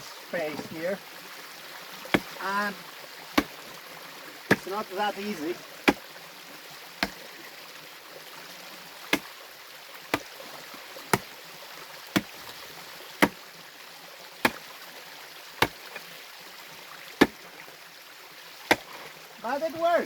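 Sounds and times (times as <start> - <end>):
stream rushing: 0.0 - 20.0
hand tool striking rock: 2.1 - 2.5, 3.4 - 3.7, 4.5 - 4.7, 7.0 - 7.2, 9.1 - 9.4, 10.1 - 10.3, 12.2 - 12.6, 13.2 - 13.4, 15.6 - 16.0, 18.7 - 19.0.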